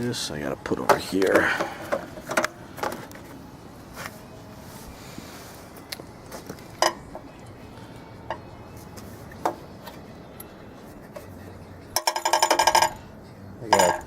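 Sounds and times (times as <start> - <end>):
metal clinks of tools: 13.7 - 14.0.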